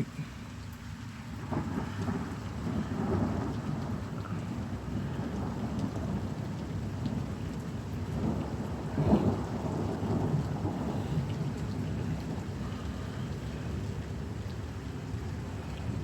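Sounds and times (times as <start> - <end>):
steady rain: 0.0 - 16.0
thunder rumbling: 1.5 - 14.4.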